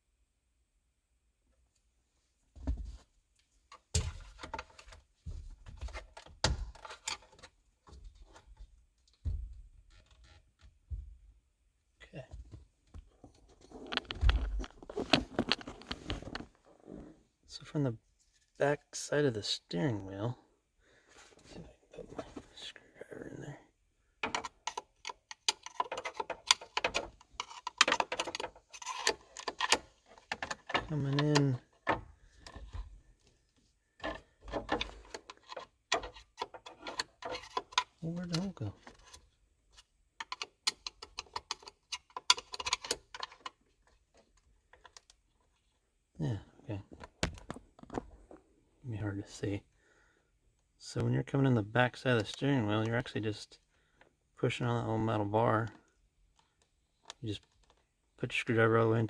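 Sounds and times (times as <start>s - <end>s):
scraping and rustling: 13.3s - 17.2s
screwdriver scraping metal and plastic: 24.2s - 32.8s, 34.0s - 38.0s, 38.8s - 43.6s.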